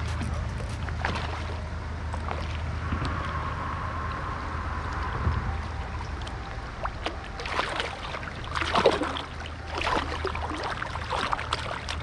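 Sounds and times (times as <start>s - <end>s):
river water splashing: 0.0s - 1.6s, 6.0s - 12.0s.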